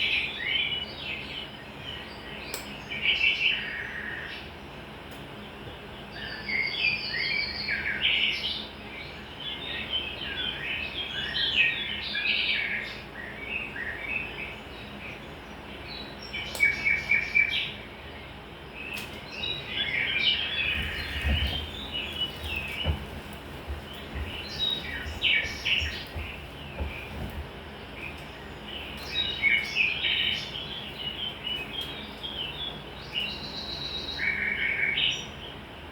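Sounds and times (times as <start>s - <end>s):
birds chirping and singing: 0.0s - 35.8s
low knocks: 20.7s - 27.6s.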